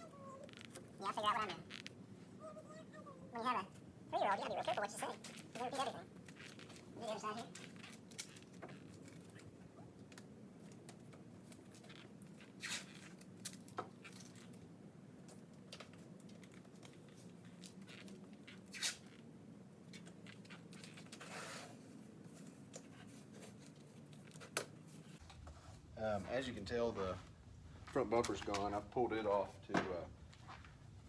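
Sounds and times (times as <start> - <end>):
tape pulled and torn: 5.0 - 9.5, 10.1 - 14.6, 15.7 - 19.2, 19.9 - 21.8.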